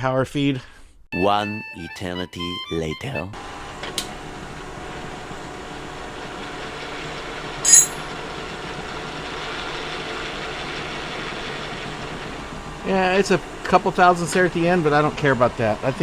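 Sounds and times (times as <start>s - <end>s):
milling machine running: 3.4s - 16.0s
sharp high-pitched click: 7.7s - 8.0s.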